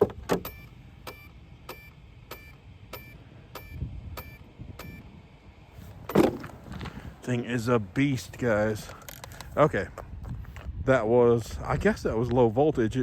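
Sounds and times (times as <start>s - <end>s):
speed controller beeping: 0.4s - 5.1s.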